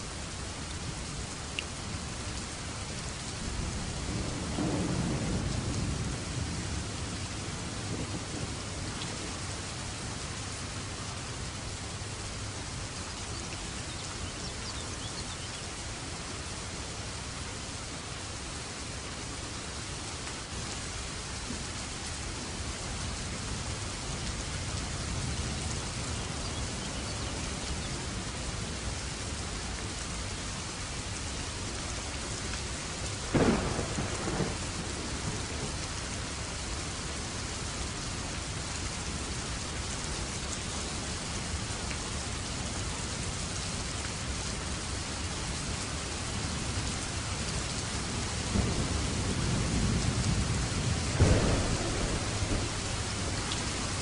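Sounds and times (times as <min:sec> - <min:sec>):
heavy rain: 0:00.0 - 0:54.0
thunderclap and rumble: 0:03.4 - 0:10.1, 0:33.3 - 0:35.9, 0:48.4 - 0:54.0.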